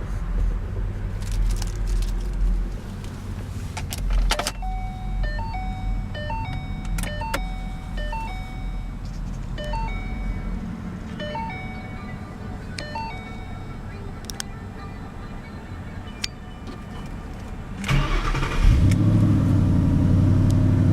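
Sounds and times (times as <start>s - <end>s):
electronic chime tune: 4.6s - 9.0s, 9.6s - 10.6s, 11.2s - 12.2s, 12.8s - 13.8s.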